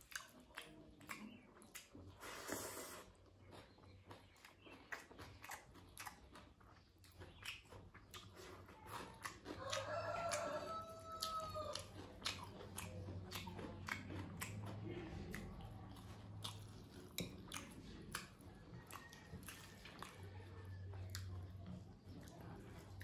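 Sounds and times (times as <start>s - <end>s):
wet chewing and lip smacks: 0.0s - 23.0s
rooster crowing: 9.6s - 11.9s.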